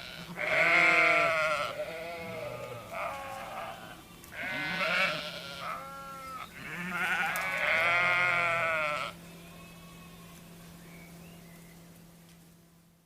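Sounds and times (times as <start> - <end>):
sheep bleating: 0.0 - 9.2.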